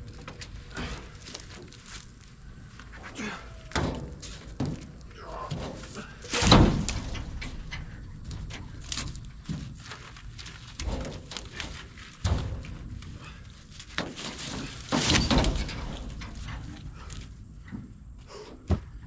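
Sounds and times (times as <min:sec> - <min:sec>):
wood being handled and dropped: 0:03.7 - 0:17.9.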